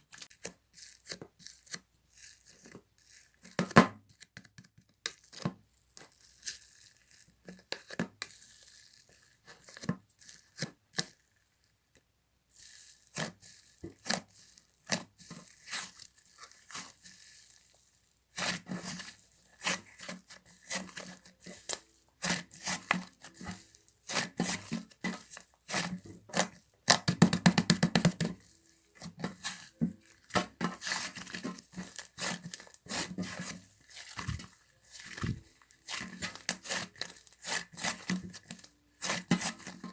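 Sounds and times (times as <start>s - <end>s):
slime squishing and popping: 24.0s - 39.7s.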